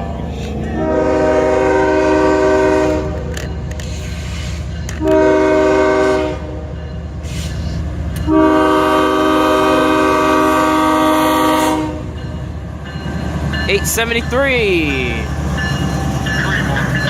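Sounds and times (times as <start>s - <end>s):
diesel locomotive engine rumbling: 0.0s - 17.0s
locomotive air horn blasts: 0.8s - 3.3s, 5.0s - 6.6s, 8.3s - 12.1s.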